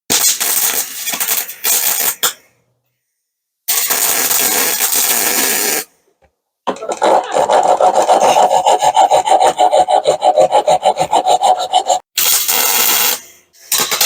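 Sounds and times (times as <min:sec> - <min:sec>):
welding arc crackling: 0:00.1 - 0:02.2, 0:03.7 - 0:05.8, 0:12.2 - 0:13.2.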